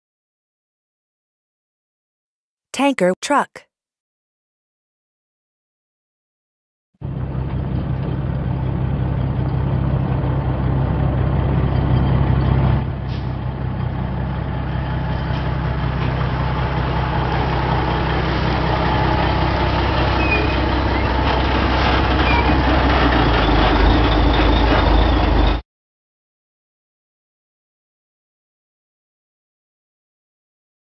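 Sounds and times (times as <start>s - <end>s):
truck engine humming: 7.0s - 25.6s.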